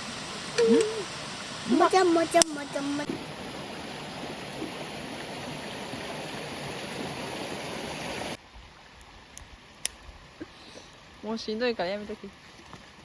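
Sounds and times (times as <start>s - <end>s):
stream water rushing: 0.0s - 13.0s
faint clicks: 9.0s - 11.2s.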